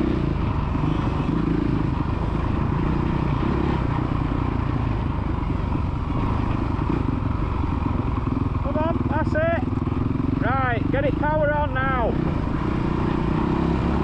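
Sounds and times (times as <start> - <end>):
motocross bike engine running: 0.0 - 14.0.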